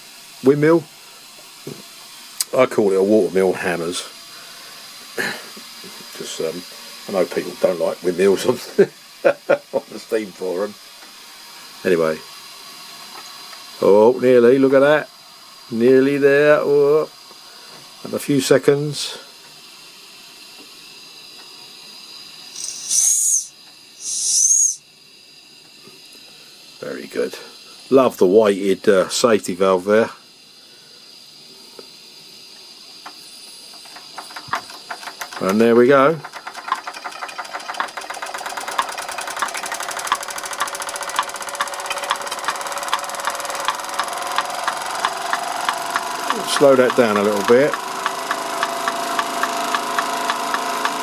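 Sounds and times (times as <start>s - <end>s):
safety valve blowing off steam: 0.0s - 14.1s, 22.0s - 24.8s, 38.4s - 51.0s
faint steady hiss: 0.0s - 36.4s
model hammers tapping: 33.0s - 35.6s, 36.2s - 51.0s.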